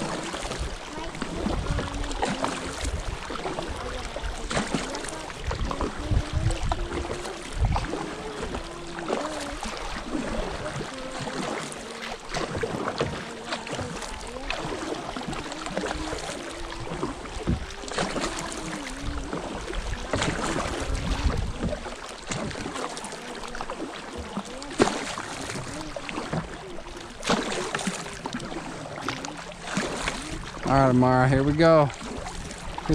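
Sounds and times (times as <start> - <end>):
paddle strokes splashing: 0.0 - 32.9
clicks and knocks on hull: 11.2 - 26.6.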